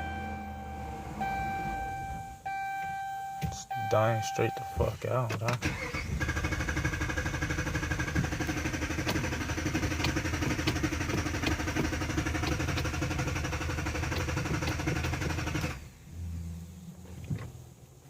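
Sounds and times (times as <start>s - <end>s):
low hum: 0.0s - 3.9s, 15.7s - 18.0s.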